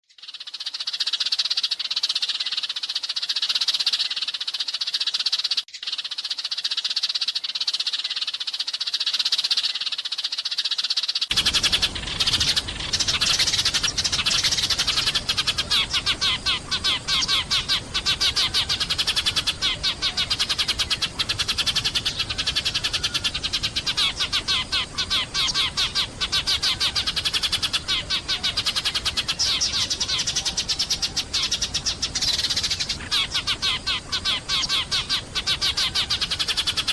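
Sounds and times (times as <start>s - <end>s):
sparrows chirping: 0.1s - 36.9s
steady rushing noise: 11.3s - 19.6s.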